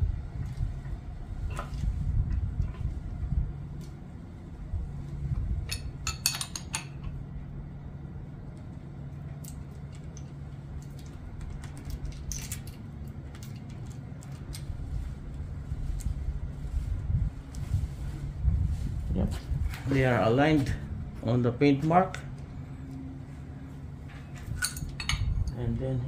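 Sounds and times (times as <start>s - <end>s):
low hum: 0.0s - 26.0s
metal chain clinking: 5.7s - 7.0s, 24.4s - 25.6s.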